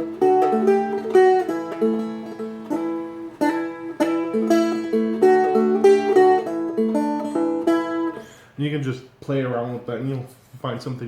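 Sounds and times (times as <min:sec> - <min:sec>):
fingerpicked strummed instrument: 0:00.0 - 0:08.4.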